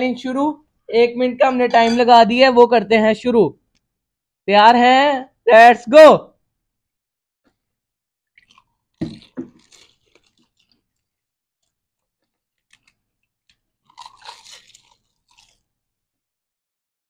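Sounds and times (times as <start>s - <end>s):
crisp shells crunching: 8.4s - 15.7s.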